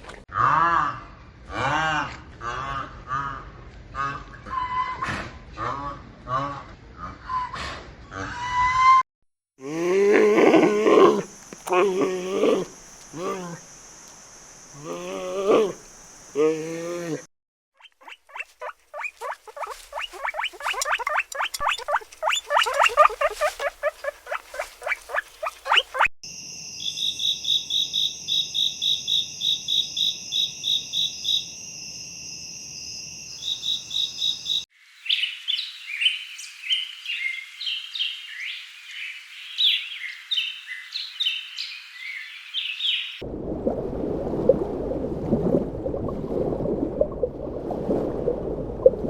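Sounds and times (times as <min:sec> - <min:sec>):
pulsing croak-like call: 0:17.8 - 0:26.1
jumble of high chirps: 0:18.0 - 0:26.1.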